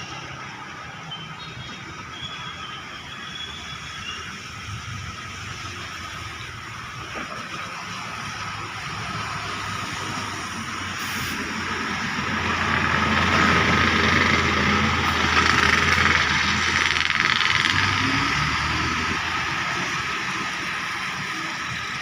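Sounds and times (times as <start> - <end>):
vehicle engine rumbling: 0.0 - 22.0
tyre hiss on wet road: 7.7 - 12.0.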